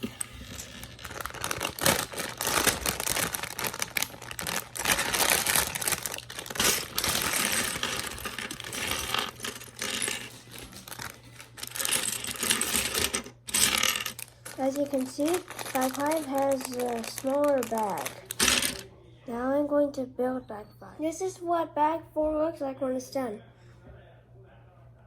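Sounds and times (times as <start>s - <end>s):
plastic bricks clattering: 0.0s - 18.8s
plastic bag crinkling: 0.0s - 18.9s.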